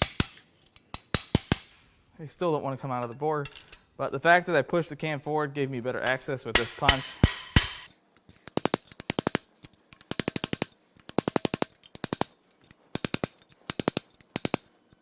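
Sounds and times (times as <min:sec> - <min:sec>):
hammer tapping on steel punch: 0:13.0 - 0:14.7.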